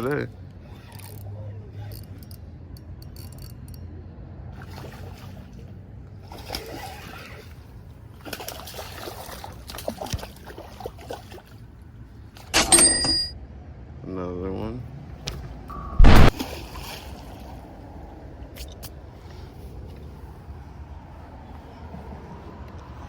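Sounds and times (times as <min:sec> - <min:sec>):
water splashing and sloshing: 0:04.5 - 0:13.3, 0:15.3 - 0:23.0
sharp loud clack with ringing: 0:12.6 - 0:13.4.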